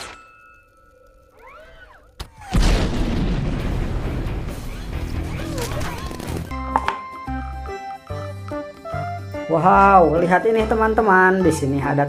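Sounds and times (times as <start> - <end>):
explosion boom with low rumble: 2.5 - 4.7
music: 3.5 - 12.0.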